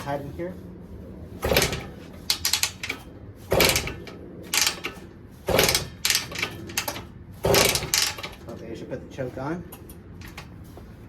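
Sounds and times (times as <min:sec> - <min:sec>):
motorcycle kick-starter clatter: 0:01.4 - 0:08.6, 0:09.7 - 0:10.6.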